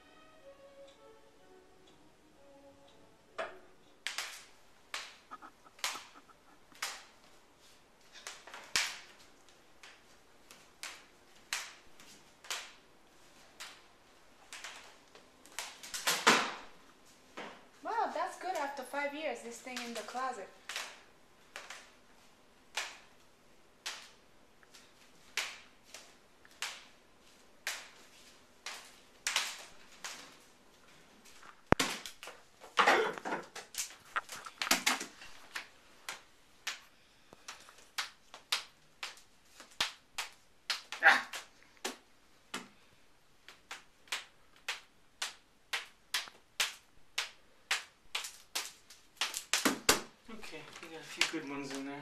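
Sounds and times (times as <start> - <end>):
sticks knocking on wooden stick: 4.9 - 7.1.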